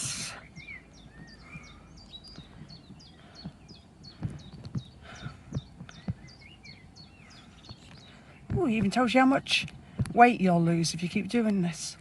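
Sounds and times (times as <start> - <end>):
dull low thumps: 0.0 - 11.4
small birds chirping: 0.0 - 12.0.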